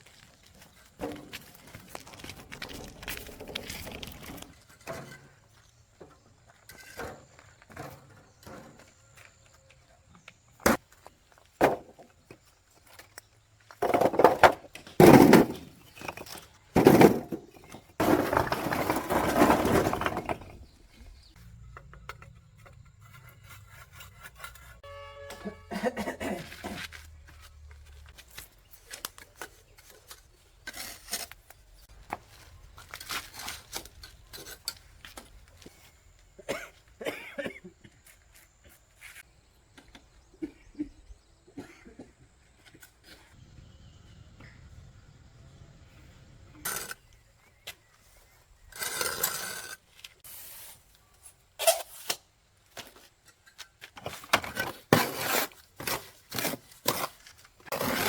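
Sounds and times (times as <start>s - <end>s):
scraping or rustling noise: 0.0s - 5.6s, 15.0s - 21.4s, 26.4s - 35.9s, 47.8s - 52.2s, 52.8s - 58.0s
objects clattering and knocking: 0.7s - 9.5s, 10.6s - 24.6s, 52.7s - 58.0s.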